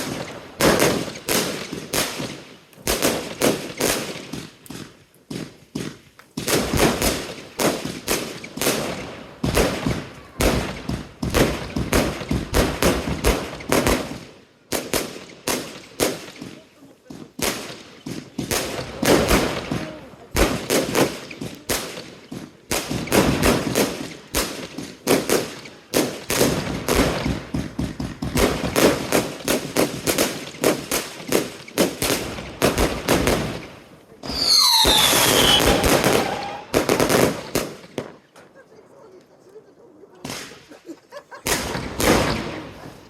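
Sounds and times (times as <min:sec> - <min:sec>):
firework battery shots and bursts: 0:00.0 - 0:38.4, 0:41.4 - 0:43.0
falling whistles: 0:34.2 - 0:36.7.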